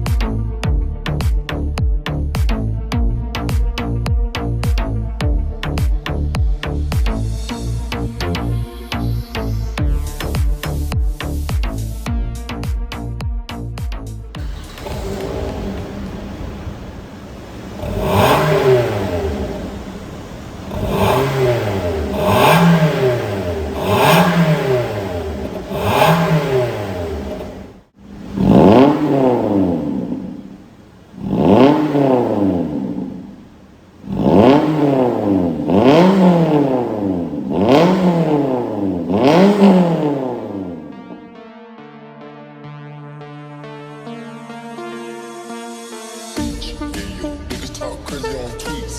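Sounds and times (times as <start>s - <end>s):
car engine revving: 14.3s - 41.4s.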